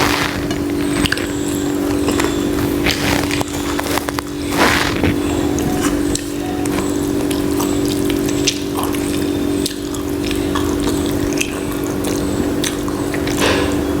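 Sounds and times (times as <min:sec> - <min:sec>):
wet eating smacks and squelches: 0:00.0 - 0:13.4
steady hum: 0:00.0 - 0:14.0.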